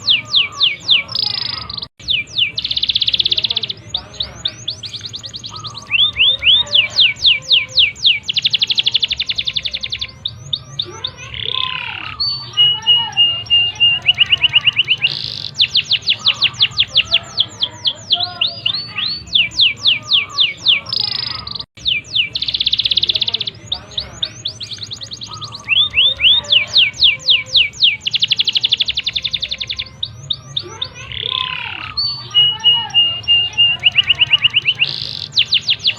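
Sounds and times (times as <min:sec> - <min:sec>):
canary singing trills: 0:00.0 - 0:35.9.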